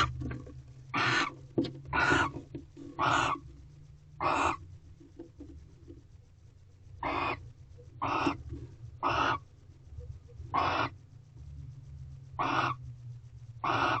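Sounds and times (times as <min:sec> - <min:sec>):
owl rasping hiss: 0:00.9 - 0:02.4, 0:03.0 - 0:03.4, 0:04.2 - 0:04.6, 0:07.0 - 0:07.4, 0:08.0 - 0:09.5, 0:10.5 - 0:11.0, 0:12.4 - 0:12.8, 0:13.6 - 0:14.0.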